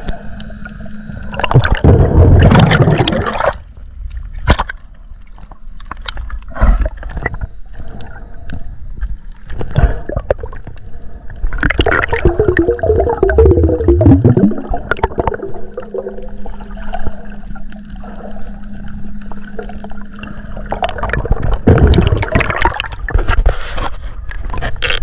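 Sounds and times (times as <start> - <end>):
water sloshing and gurgling: 1.2 - 25.0
water splashing: 19.2 - 23.5.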